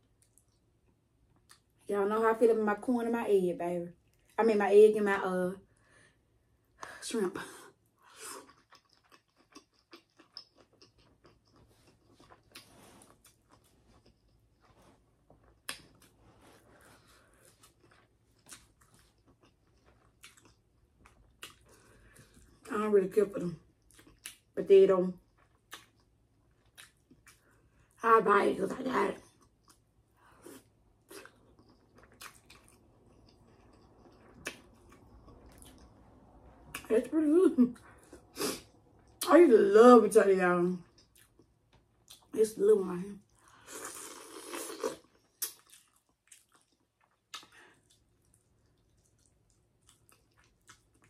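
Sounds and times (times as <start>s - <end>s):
close-miked chewing: 8.0s - 22.7s, 23.5s - 28.0s, 29.1s - 36.9s, 40.8s - 42.4s, 43.2s - 51.0s
wet mouth smacks: 47.3s - 47.6s.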